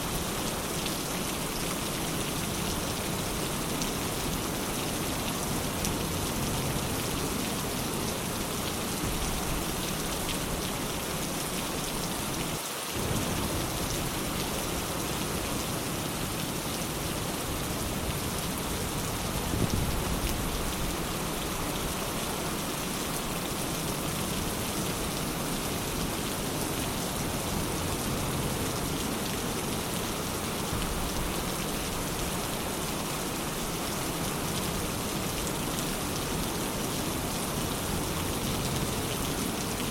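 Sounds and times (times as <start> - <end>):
steady rain falling: 0.0 - 39.9
low rumble of thunder: 13.0 - 14.5, 19.4 - 20.8.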